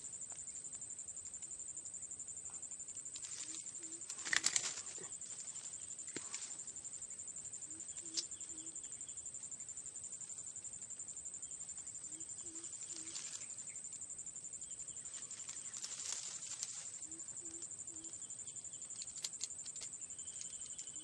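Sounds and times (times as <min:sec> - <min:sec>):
high insect trill: 0:00.0 - 0:21.0
light clicks and rustles: 0:03.0 - 0:06.7, 0:15.0 - 0:17.0, 0:18.8 - 0:21.0
dove cooing: 0:03.3 - 0:05.2, 0:12.1 - 0:13.4.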